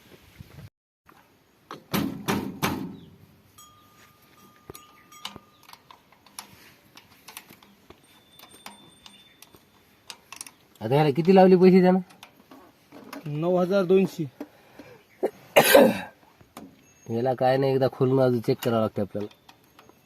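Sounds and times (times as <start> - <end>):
metallic clinks and knocks: 3.6 - 11.4.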